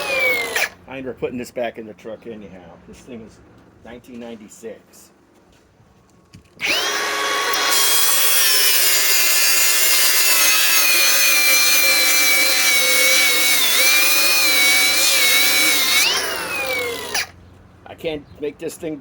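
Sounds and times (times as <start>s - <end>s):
angle grinder grinding steel: 0.0s - 0.8s, 6.6s - 17.4s.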